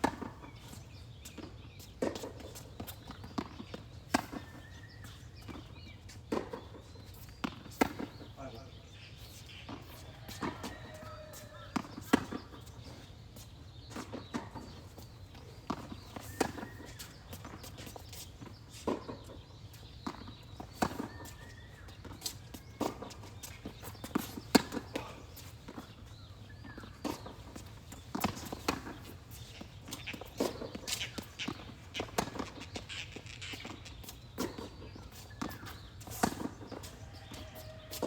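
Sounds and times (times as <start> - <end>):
racquets striking tennis ball: 22.0 - 38.0.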